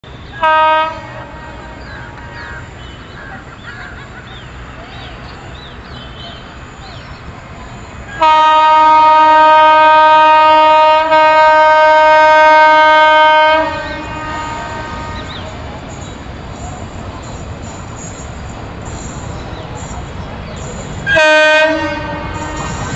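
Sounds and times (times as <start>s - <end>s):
locomotive horn blast: 0.1s - 2.7s, 8.1s - 16.0s, 21.0s - 22.9s.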